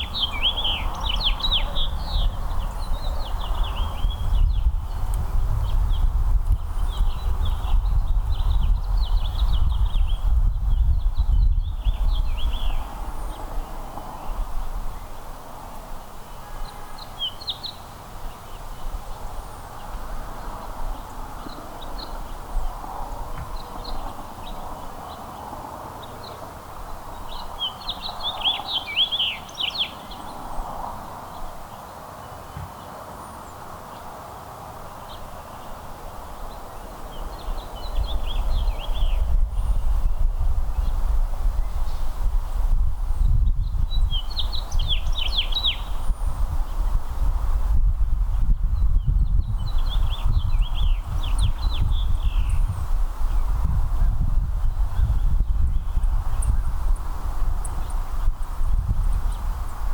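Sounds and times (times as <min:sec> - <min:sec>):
small songbirds chirping: 0:00.0 - 0:47.2, 0:48.0 - 0:59.9
outdoor ambience: 0:00.0 - 0:59.9.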